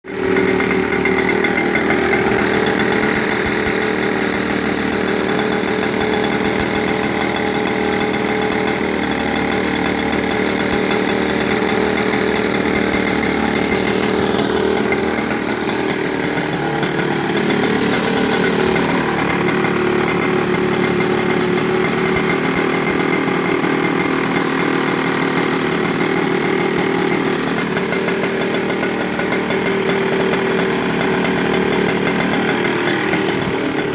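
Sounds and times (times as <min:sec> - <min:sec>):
two-stroke moped engines running: 0:00.0 - 0:33.9.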